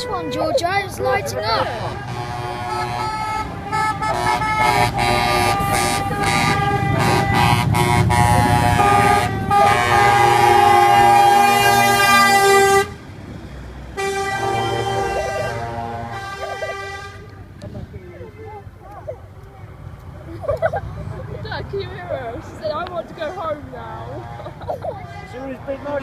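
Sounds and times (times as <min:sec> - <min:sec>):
truck horns blasting: 0:00.0 - 0:17.4
truck engines rumbling: 0:00.0 - 0:26.0.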